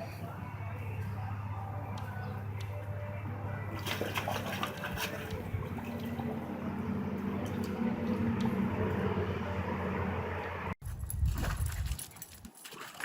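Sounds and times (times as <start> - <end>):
low hum: 0.0 - 11.8
water splashing and sloshing: 3.6 - 13.0.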